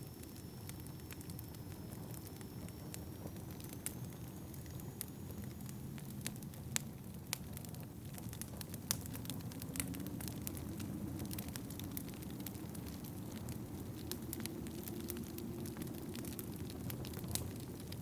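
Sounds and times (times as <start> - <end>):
fire popping: 0.0 - 18.0
wood fire crackling: 0.0 - 18.0
wind rumble: 0.1 - 18.0.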